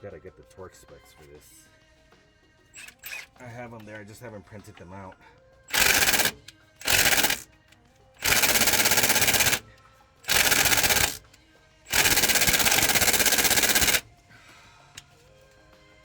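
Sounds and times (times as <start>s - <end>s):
impact gun rattling: 2.8s - 3.3s, 5.7s - 7.5s, 8.2s - 9.7s, 10.3s - 11.3s, 11.9s - 14.1s.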